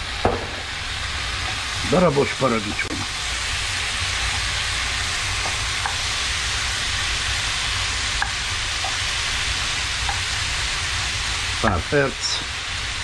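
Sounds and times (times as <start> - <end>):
tomatoes sizzling in a pan: 0.0 - 13.0.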